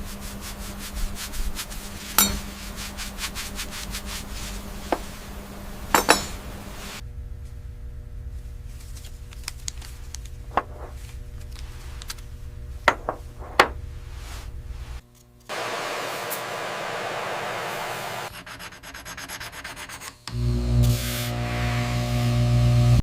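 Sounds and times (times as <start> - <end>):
scratchy rubbing strokes: 0.0 - 5.9, 13.0 - 15.0, 17.6 - 20.1
silver being polished: 0.0 - 7.0, 17.8 - 20.2
low hum: 1.0 - 15.0
silverware clinking: 2.2 - 2.6, 5.9 - 6.7.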